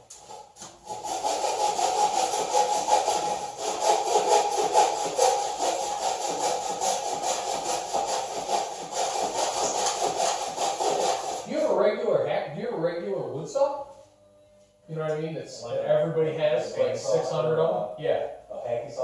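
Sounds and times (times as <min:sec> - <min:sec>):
hand saw cutting wood: 0:00.0 - 0:11.5.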